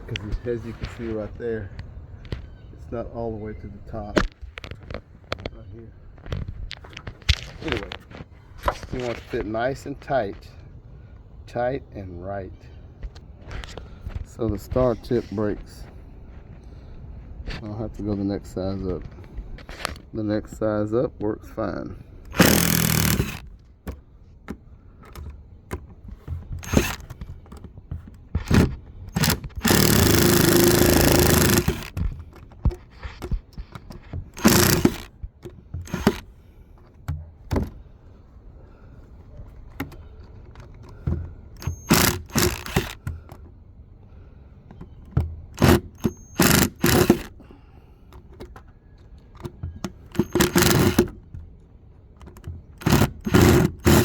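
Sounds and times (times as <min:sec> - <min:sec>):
power drill backing out screws: 0:22.2 - 0:37.8, 0:39.6 - 0:43.4, 0:44.7 - 0:47.5, 0:48.2 - 0:51.5, 0:52.2 - 0:54.0.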